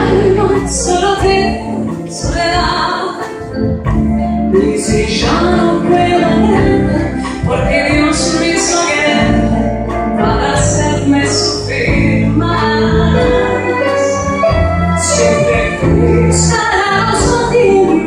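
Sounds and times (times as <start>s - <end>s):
orchestra accompaniment: 0.0s - 18.0s
person singing: 4.5s - 18.0s.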